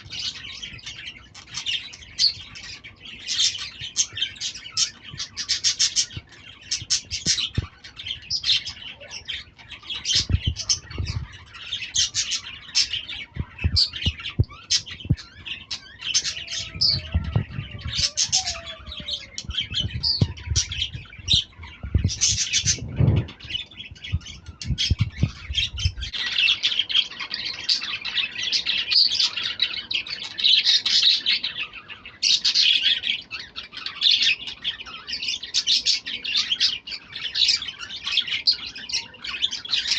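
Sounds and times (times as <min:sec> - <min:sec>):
birds chirping and squawking: 0:00.0 - 0:39.9
low knocks and thumps: 0:13.4 - 0:15.3, 0:16.4 - 0:26.1.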